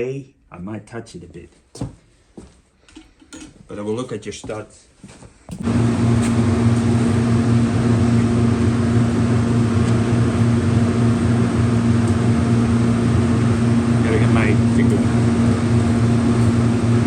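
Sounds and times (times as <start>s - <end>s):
electric machine humming: 5.6s - 17.0s.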